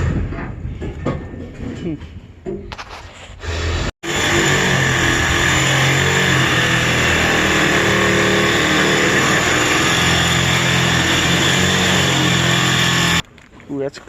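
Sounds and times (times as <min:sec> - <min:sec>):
power tool cutting metal: 0:04.0 - 0:13.2.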